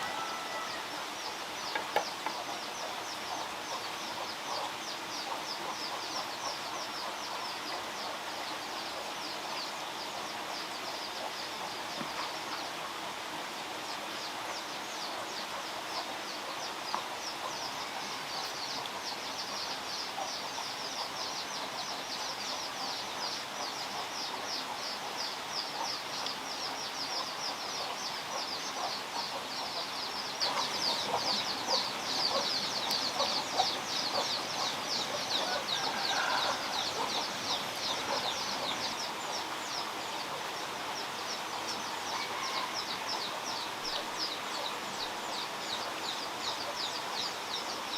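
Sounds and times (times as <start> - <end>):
birds chirping: 0.0 - 12.8, 13.8 - 47.9
bird clucking calls: 27.2 - 40.6.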